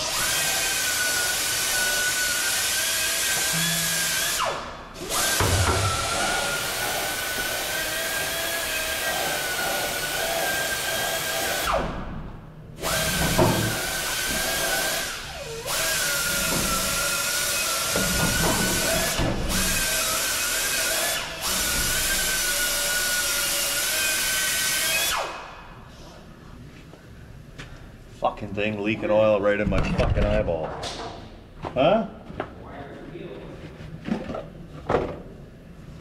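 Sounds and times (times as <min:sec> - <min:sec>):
power tool motor whining: 0:12.8 - 0:25.4.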